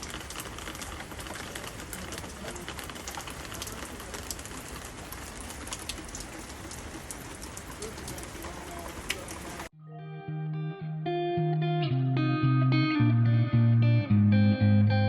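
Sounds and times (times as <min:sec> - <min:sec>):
steady rain falling: 0:00.0 - 0:09.7.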